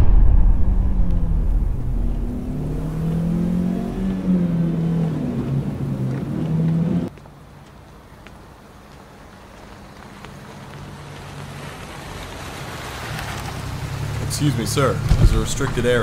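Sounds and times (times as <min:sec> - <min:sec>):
low rumble: 0:00.0 - 0:06.0
car engine revving: 0:00.0 - 0:07.1.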